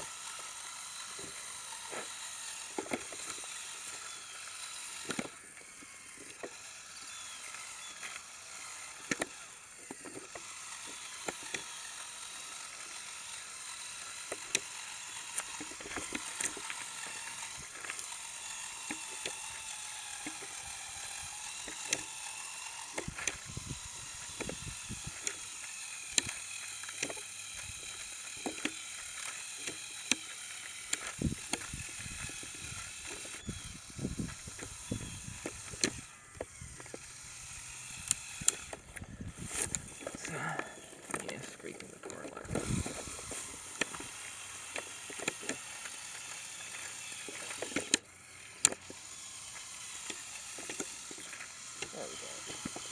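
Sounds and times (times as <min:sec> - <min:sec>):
electric motor whine: 0:00.0 - 0:52.9
sharp clicks and knocks: 0:22.8 - 0:37.1.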